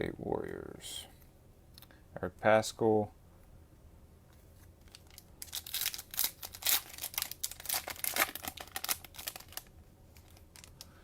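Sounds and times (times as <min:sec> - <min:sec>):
plastic wrapper tearing and crinkling: 0:04.8 - 0:10.9.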